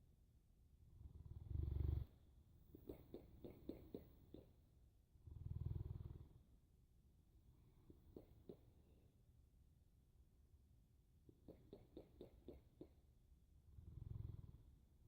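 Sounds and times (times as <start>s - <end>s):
dog snoring: 1.0s - 2.2s, 5.2s - 6.5s, 13.8s - 14.8s.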